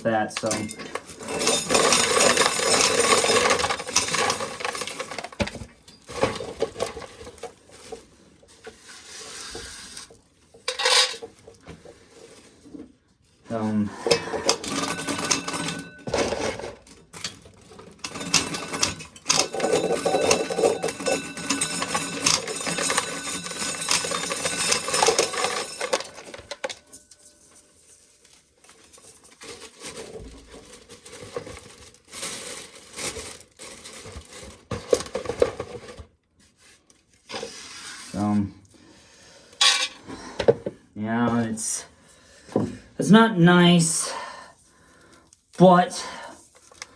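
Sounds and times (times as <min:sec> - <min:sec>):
corn kernels clattering in sheller: 0:00.0 - 0:08.0, 0:10.7 - 0:11.4, 0:13.6 - 0:36.0.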